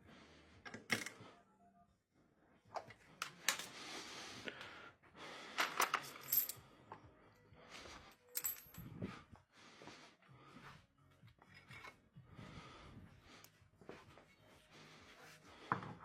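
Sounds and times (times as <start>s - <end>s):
metal parts clinking and scraping: 5.6s - 6.6s, 8.3s - 8.9s.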